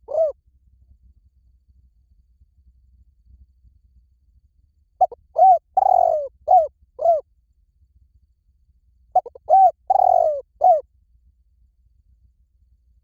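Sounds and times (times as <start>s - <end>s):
dove cooing: 0.0s - 0.3s, 5.0s - 7.2s, 9.2s - 10.8s.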